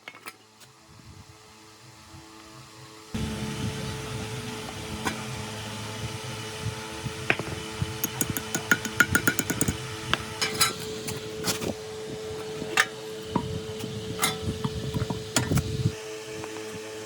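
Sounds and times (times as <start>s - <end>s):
steady hum: 0.8s - 17.0s
metallic clinks and knocks: 8.0s - 9.8s.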